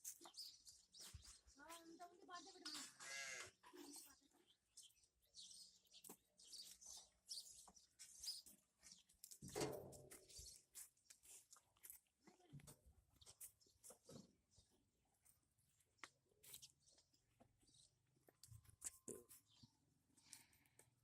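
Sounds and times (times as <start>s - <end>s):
goat bleat: 2.8s - 3.5s
goats crunching while feeding: 10.2s - 12.2s.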